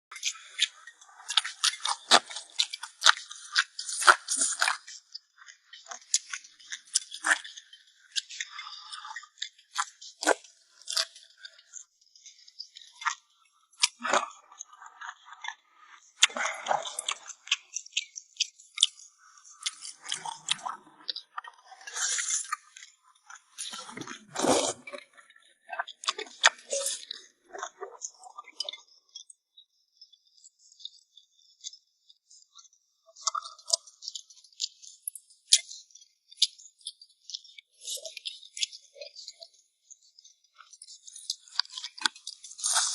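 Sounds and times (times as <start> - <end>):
person chewing crunchy food: 19.5 - 22.9, 23.6 - 25.0, 41.4 - 42.9.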